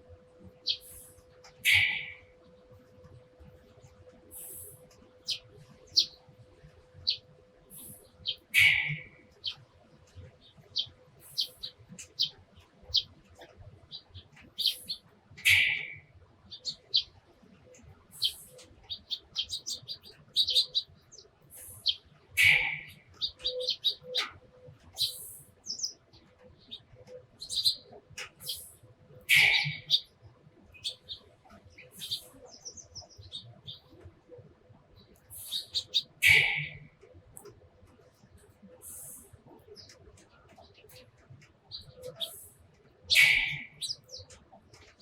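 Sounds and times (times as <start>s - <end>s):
sparrows chirping: 0.3s - 45.0s.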